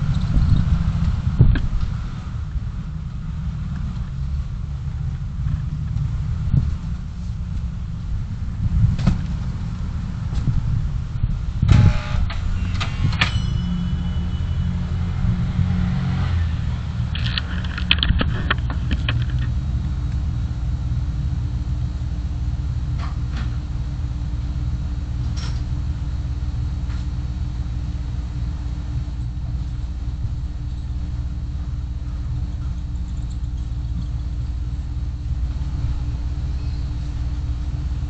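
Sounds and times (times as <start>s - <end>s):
car engine and road rumble: 0.0s - 38.0s
sharp knocks and rattles: 17.0s - 19.6s.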